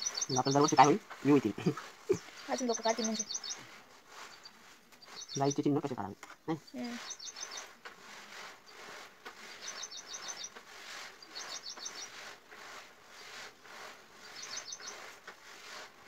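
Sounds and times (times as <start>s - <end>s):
bird chirping: 0.0s - 1.0s, 2.1s - 7.8s, 9.6s - 10.6s, 11.2s - 12.2s, 14.2s - 15.1s
pen scratching on paper: 7.0s - 15.9s.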